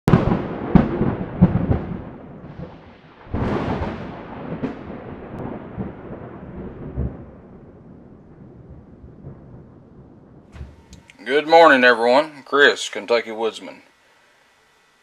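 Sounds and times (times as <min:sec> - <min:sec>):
deep booms with rumble: 0:00.1 - 0:11.1.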